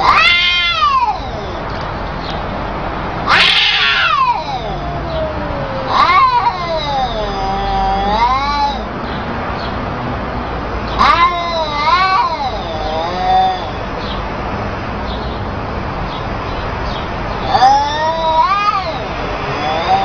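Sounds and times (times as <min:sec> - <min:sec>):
cat yowling: 0:00.0 - 0:01.8, 0:03.2 - 0:08.9, 0:11.0 - 0:14.0, 0:17.4 - 0:20.0.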